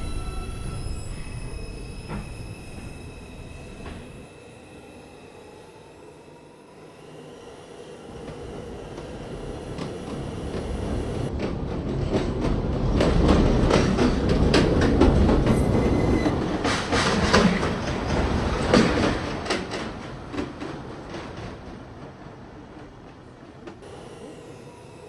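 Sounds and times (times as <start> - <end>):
subway train rumble: 0.0 - 25.0.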